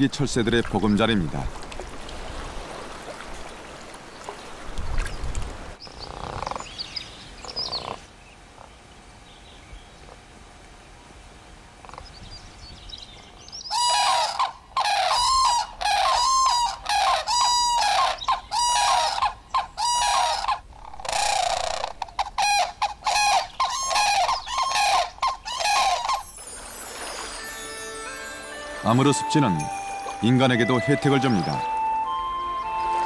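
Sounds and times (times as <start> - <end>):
wetland bird ringing calls: 13.4 - 33.0.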